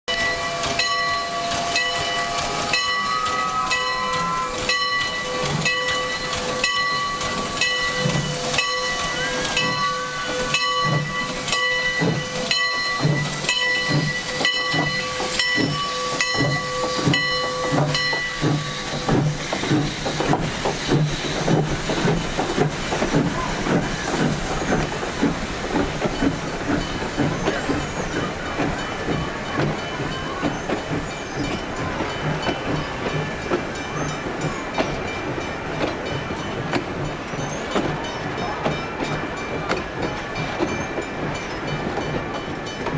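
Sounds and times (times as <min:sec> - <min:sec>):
train hiss: 0:00.1 - 0:42.9
train rhythmic clatter: 0:00.1 - 0:42.9
train whistle: 0:00.2 - 0:05.5, 0:08.3 - 0:10.7.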